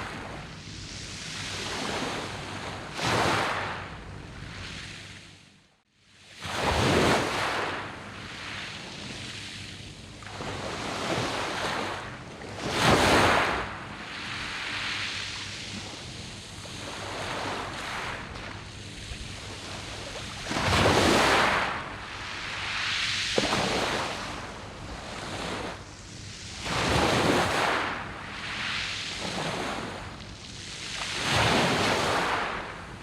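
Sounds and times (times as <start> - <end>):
sea waves breaking on pebbles: 19.7 - 25.8, 26.5 - 30.1.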